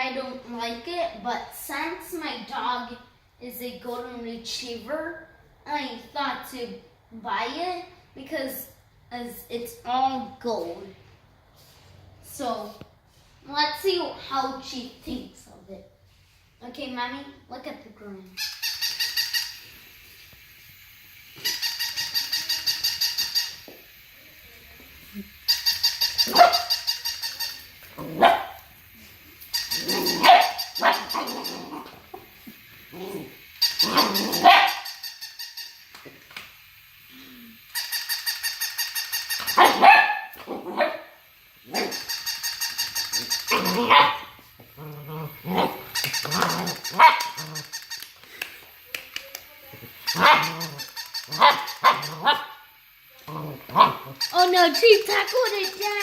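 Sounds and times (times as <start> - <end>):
pulsed electronic toy tune: 21.5 - 23.6, 29.5 - 31.6, 54.2 - 56.0
puppy barking: 26.2 - 26.8, 28.0 - 28.6, 29.8 - 31.8, 33.8 - 34.9, 39.5 - 42.0, 43.2 - 44.4, 45.5 - 47.7, 50.1 - 52.6.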